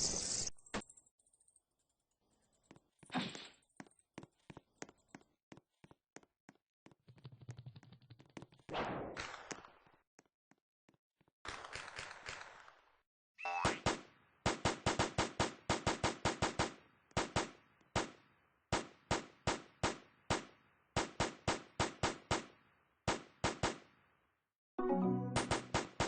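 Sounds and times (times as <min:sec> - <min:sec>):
rapid sharp bangs with ringing tail: 0:25.4 - 0:26.0.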